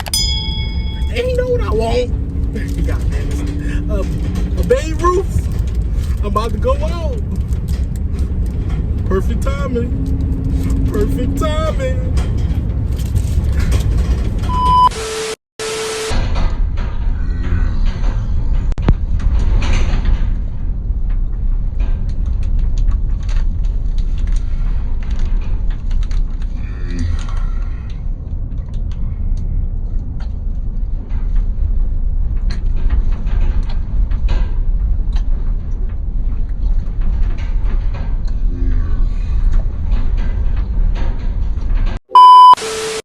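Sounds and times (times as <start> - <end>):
van engine and road rumble: 0.0 - 14.9, 16.1 - 42.5
rattles and clicks from van body: 1.0 - 14.5, 18.3 - 26.6, 27.2 - 38.5, 39.1 - 42.0.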